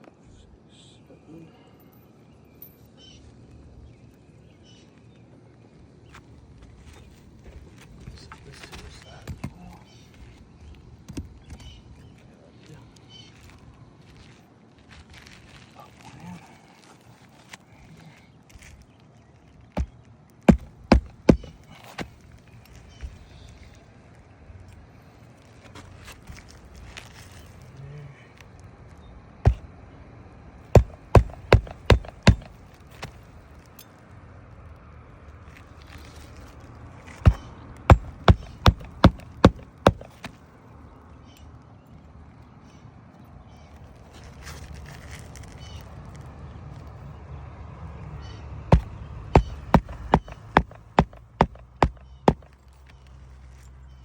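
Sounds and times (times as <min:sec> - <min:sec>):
hammer hitting nail into shingle: 0:20.5 - 0:22.1, 0:30.8 - 0:33.2, 0:37.3 - 0:40.4, 0:48.7 - 0:52.5.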